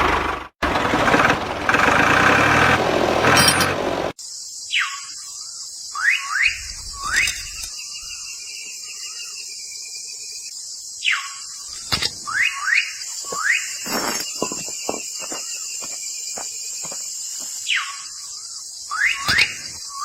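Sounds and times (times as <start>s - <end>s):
high insect drone: 4.1s - 20.0s
bird whistled swooping calls: 4.7s - 8.4s, 11.0s - 13.8s, 18.9s - 20.0s.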